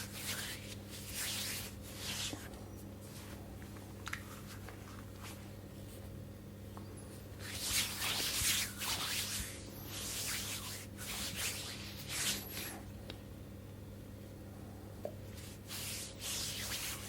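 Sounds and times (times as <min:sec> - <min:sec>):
hands rubbing: 0:00.0 - 0:03.5, 0:07.4 - 0:12.8, 0:15.3 - 0:17.0.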